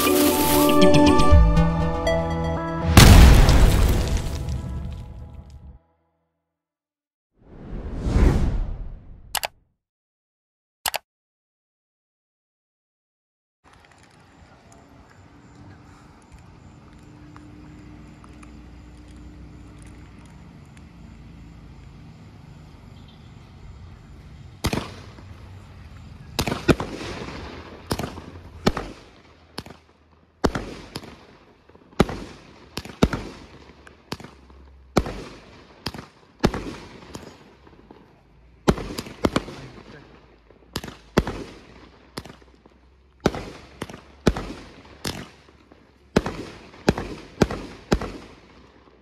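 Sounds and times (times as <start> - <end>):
fireworks bangs: 2.9 - 5.2, 26.3 - 48.8.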